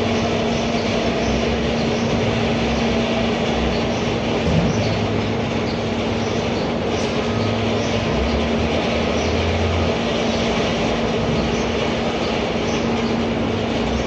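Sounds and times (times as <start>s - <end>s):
machinery humming: 0.0s - 14.0s.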